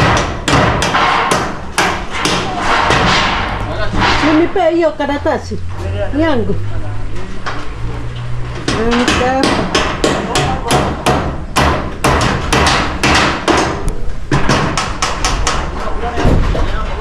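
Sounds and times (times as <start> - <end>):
steady hammering: 0.0 - 4.8, 8.5 - 16.4.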